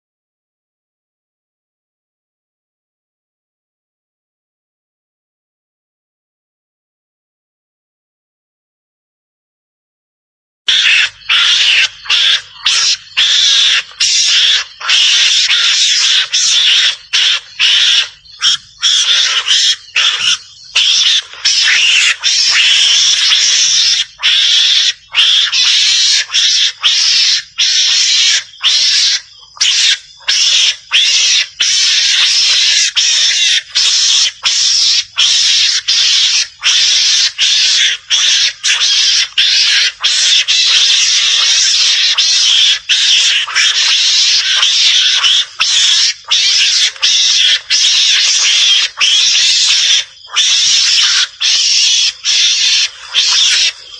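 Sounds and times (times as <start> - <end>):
mongoose shrill rasping chatter: 10.7 - 53.9.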